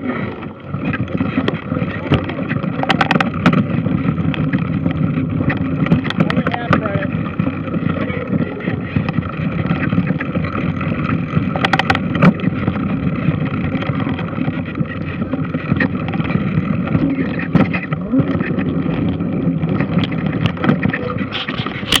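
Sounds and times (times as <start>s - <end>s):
clicks and knocks: 1.4s - 3.7s, 11.5s - 12.5s.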